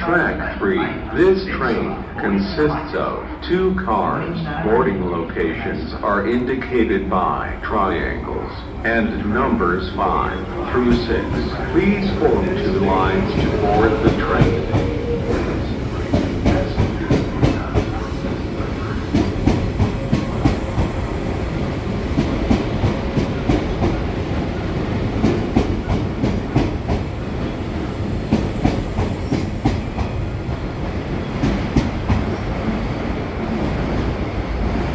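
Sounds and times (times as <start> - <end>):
low train rumble: 0.0 - 34.9
train wheels clacking over rail joints: 10.9 - 21.0.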